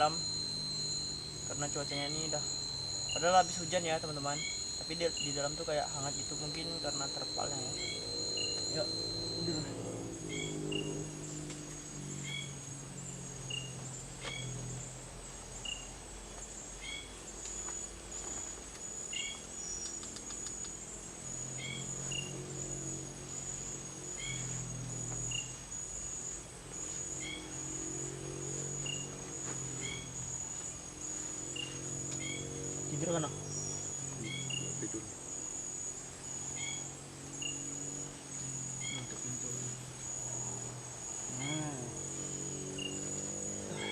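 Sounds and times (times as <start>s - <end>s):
soft low droning tones: 0.0s - 16.2s
crickets trilling: 0.0s - 43.9s.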